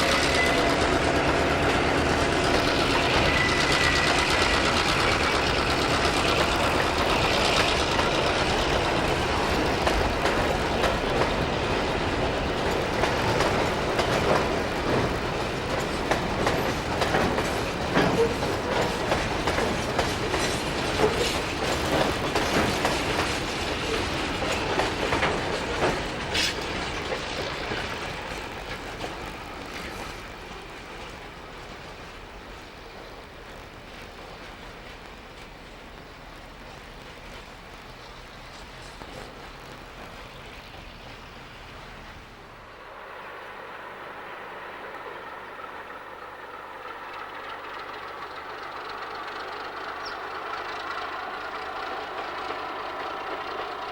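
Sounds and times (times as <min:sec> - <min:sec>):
wagon wheels clacking over rail joints: 0:00.0 - 0:42.7
freight train rolling past: 0:00.0 - 0:53.9.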